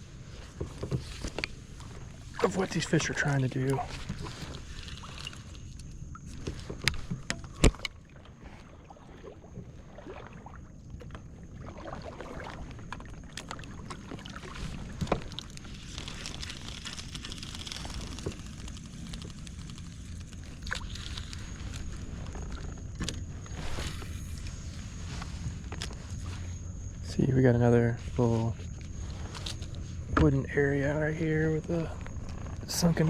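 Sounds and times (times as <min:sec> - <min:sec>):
knocks and clicks on hull: 0:00.4 - 0:16.6, 0:17.2 - 0:23.6
steady low rumble: 0:14.8 - 0:33.0.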